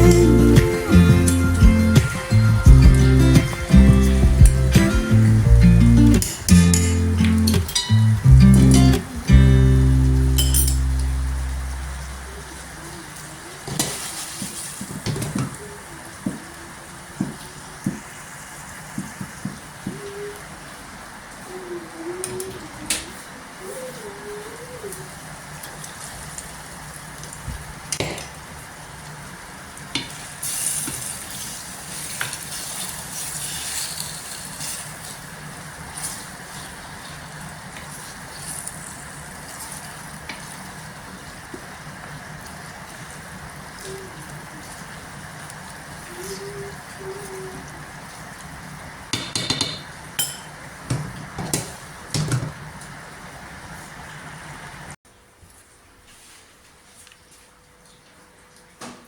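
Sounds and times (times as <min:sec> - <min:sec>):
kitchenware clinking: 0:06.2 - 0:09.0, 0:10.3 - 0:12.1, 0:49.2 - 0:50.6
food sizzling in a frying pan: 0:09.0 - 0:21.6, 0:24.9 - 0:49.2
utensil knocking against pan: 0:49.2 - 0:50.5.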